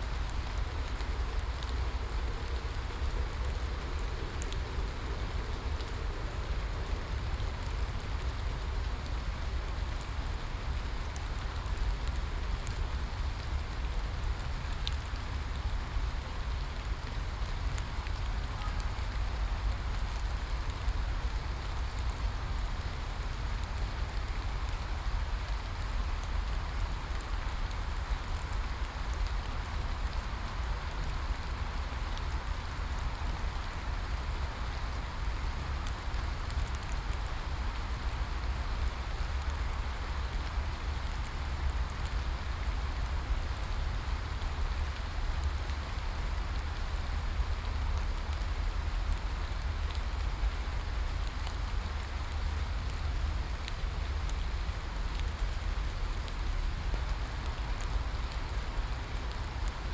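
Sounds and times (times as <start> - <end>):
steady rainfall: 0.0 - 59.9
raindrop ticks: 0.1 - 59.9.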